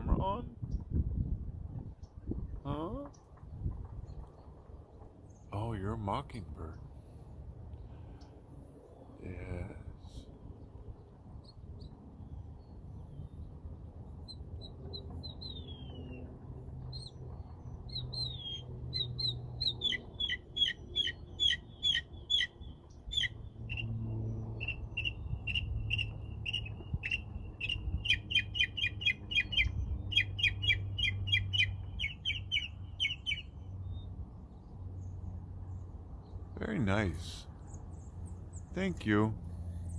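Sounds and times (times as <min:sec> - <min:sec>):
mockingbird singing: 0:14.2 - 0:23.9, 0:24.6 - 0:33.6.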